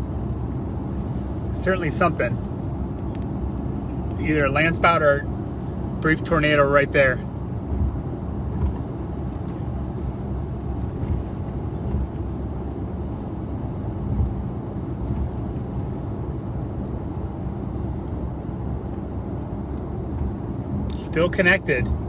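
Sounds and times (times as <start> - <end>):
vehicle road rumble: 0.0 - 22.0.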